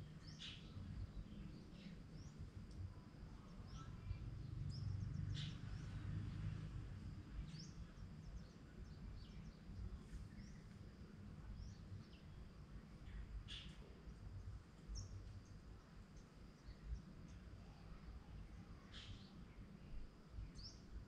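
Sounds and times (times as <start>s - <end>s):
low background rumble: 0.0s - 21.0s
birds chirping: 3.5s - 6.1s.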